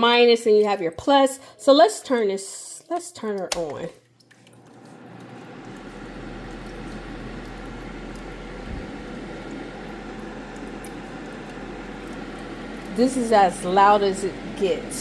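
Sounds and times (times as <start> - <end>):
space heater fan running: 4.5 - 15.0.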